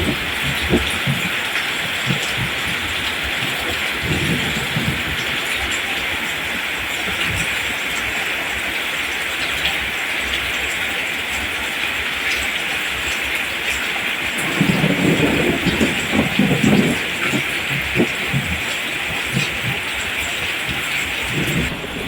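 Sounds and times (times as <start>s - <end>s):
rain falling on plants: 0.0s - 22.0s
low rumbling: 20.7s - 22.0s.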